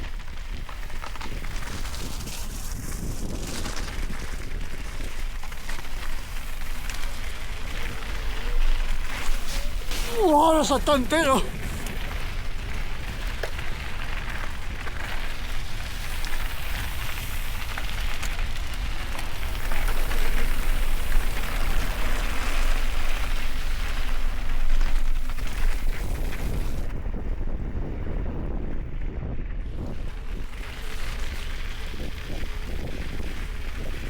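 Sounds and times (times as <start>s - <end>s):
bike tyres rushing on wet trail: 0.0s - 28.3s, 29.6s - 34.0s
wind buffeting microphone: 11.5s - 34.0s.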